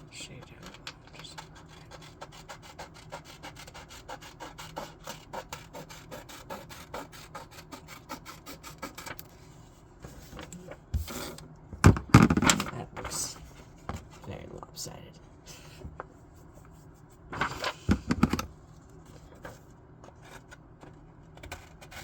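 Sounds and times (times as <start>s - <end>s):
pencil scribbling on paper: 1.1s - 9.1s.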